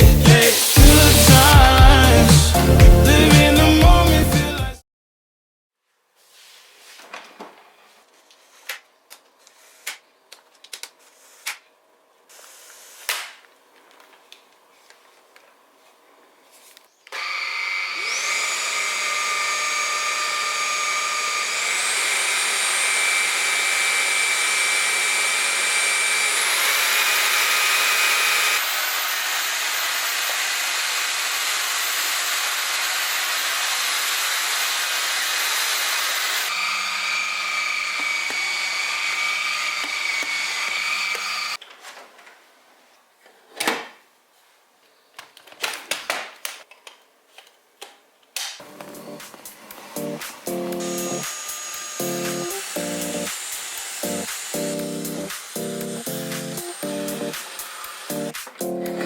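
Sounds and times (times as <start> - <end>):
stick vacuum motor whining: 17.1 - 41.6, 48.6 - 59.0.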